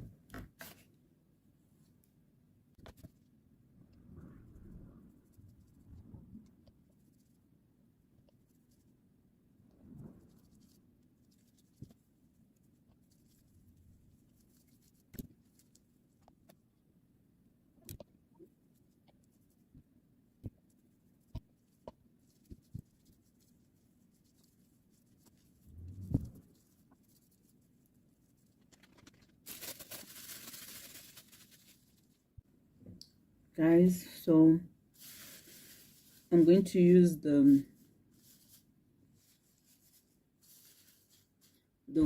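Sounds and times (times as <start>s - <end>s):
small clicks and taps: 17.8s - 18.1s.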